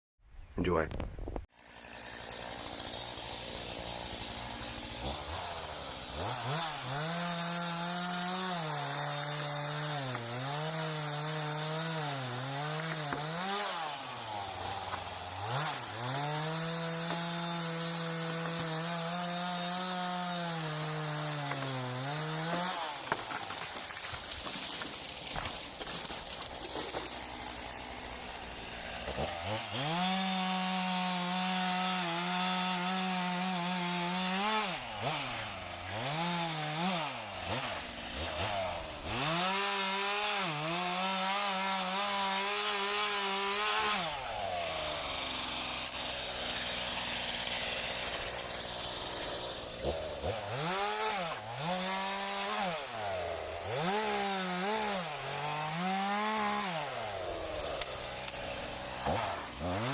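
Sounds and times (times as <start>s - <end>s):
chainsaw cutting wood: 1.4s - 59.9s.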